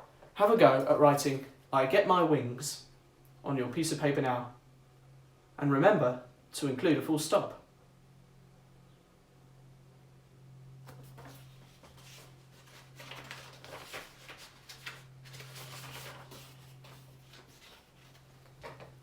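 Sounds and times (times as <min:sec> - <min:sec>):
soft scratching and rustling: 0:10.9 - 0:19.0.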